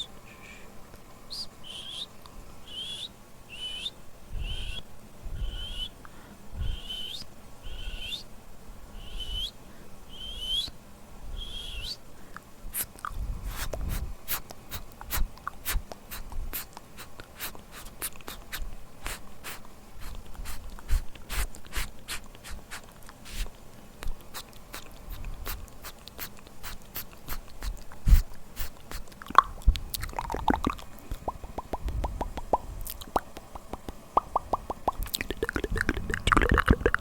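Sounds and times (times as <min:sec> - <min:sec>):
wet mouth clicks and pops: 0:12.8 - 0:17.3, 0:18.0 - 0:37.0
high squeaky mouth sounds: 0:12.8 - 0:30.6.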